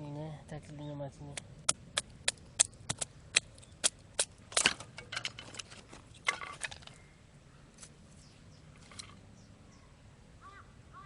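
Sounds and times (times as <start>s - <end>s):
wood cracking and splintering: 1.7s - 7.0s.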